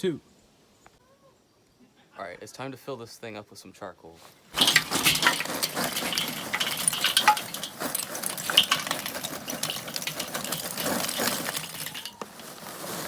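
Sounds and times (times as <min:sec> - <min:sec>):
charcoal clattering into grill: 0:04.5 - 0:13.0.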